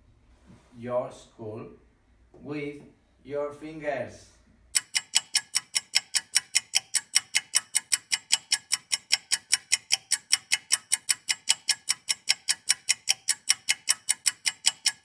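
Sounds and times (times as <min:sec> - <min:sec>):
fast sharp ticking clicks: 0:04.8 - 0:15.0.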